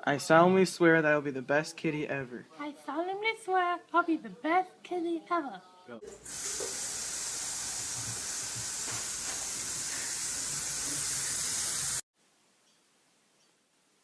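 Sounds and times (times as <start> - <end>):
steady hiss: 6.0 - 14.0.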